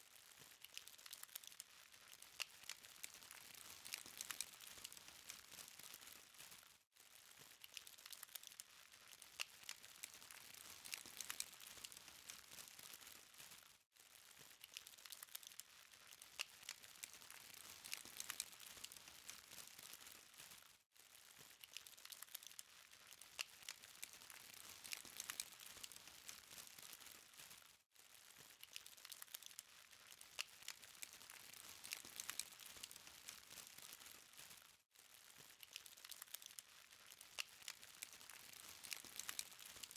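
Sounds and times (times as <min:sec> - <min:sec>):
charcoal fire crackling: 0:00.3 - 0:39.9.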